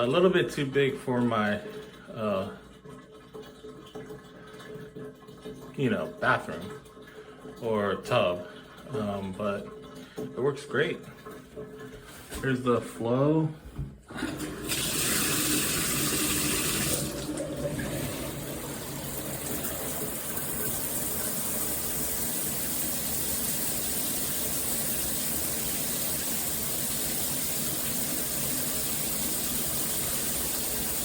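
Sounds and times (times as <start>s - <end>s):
water spraying from shower head: 19.0s - 31.0s.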